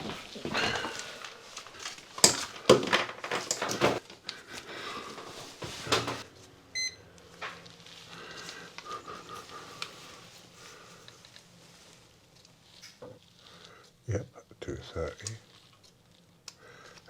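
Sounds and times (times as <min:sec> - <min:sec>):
tools clattering: 0:02.2 - 0:04.0.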